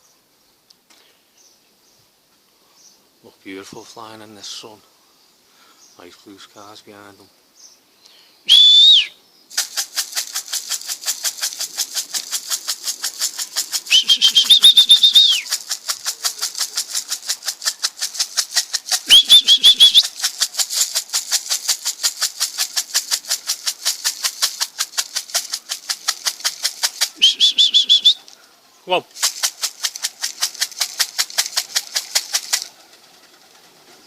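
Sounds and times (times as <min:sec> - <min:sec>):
person whistling: 0:08.5 - 0:09.2, 0:13.9 - 0:15.5, 0:19.1 - 0:20.1, 0:27.2 - 0:28.2
steady fast rattle: 0:09.5 - 0:27.3, 0:29.1 - 0:34.0.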